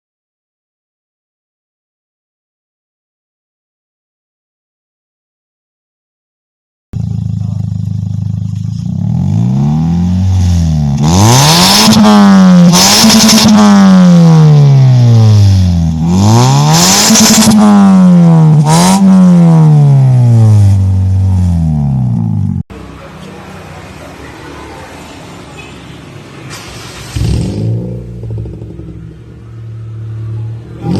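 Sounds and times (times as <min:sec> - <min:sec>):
car exhaust idling and revving: 0:07.0 - 0:23.1, 0:27.0 - 0:30.9.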